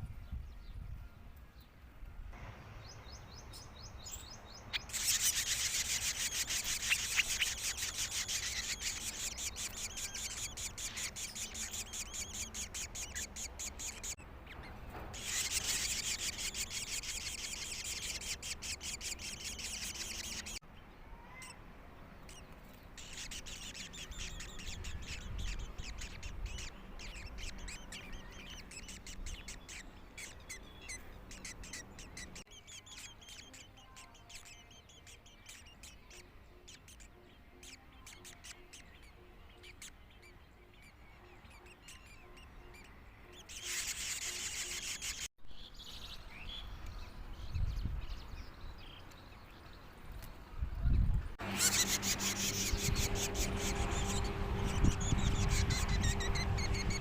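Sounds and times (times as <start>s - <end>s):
young birds chirping: 2.8s - 21.6s, 22.2s - 57.0s.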